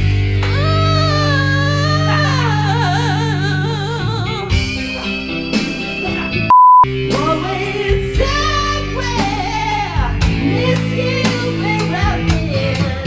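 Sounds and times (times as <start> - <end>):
guitar and bass chords: 0.0 - 13.0
singer holding long vibrato note: 0.6 - 4.6.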